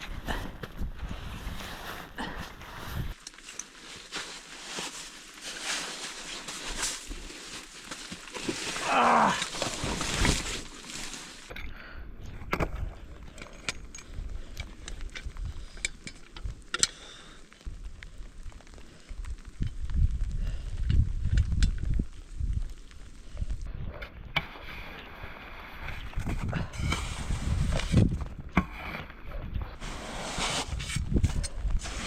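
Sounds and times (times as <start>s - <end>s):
crunching and knocking in snow: 0.0s - 11.5s, 24.4s - 32.0s
wind blustering on microphone: 19.2s - 24.4s, 25.8s - 28.5s, 29.2s - 32.0s.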